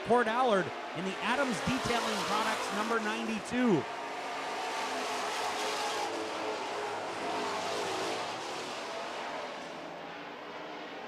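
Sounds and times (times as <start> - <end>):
racing truck engines: 0.0 - 11.0.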